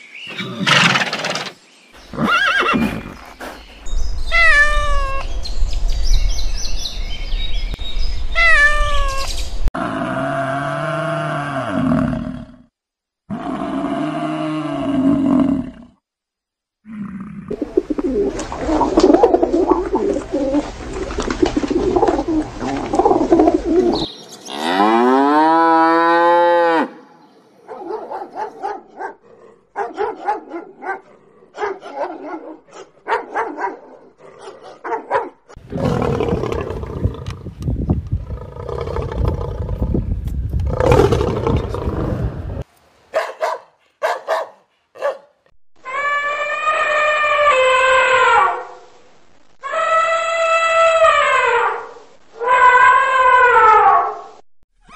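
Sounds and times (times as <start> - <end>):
rough noisy animal call: 17.4 - 27.0.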